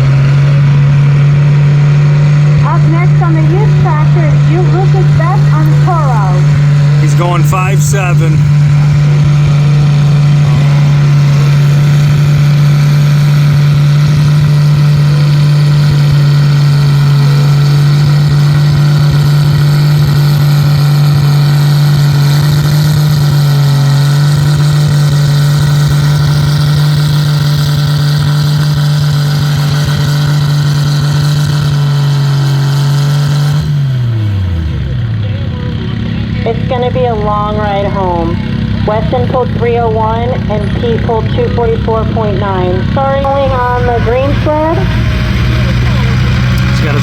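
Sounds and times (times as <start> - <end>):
tractor engine at full throttle: 0.0 - 47.0.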